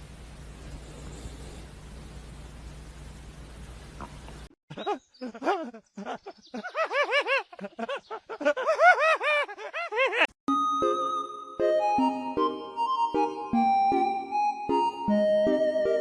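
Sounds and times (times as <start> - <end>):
steady hiss: 0.0 - 4.5.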